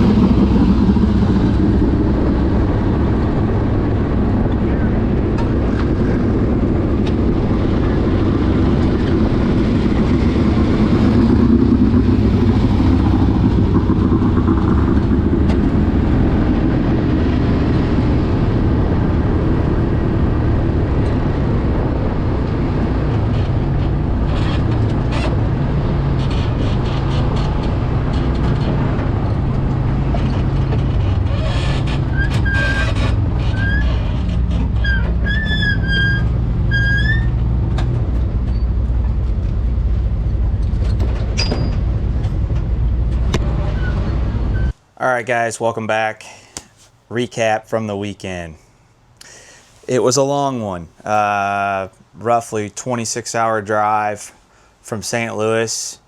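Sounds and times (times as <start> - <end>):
vehicle engine hum: 0.0 - 44.8
road noise: 0.0 - 56.0
short high squeaks: 31.0 - 37.4, 41.4 - 41.9, 43.5 - 44.8.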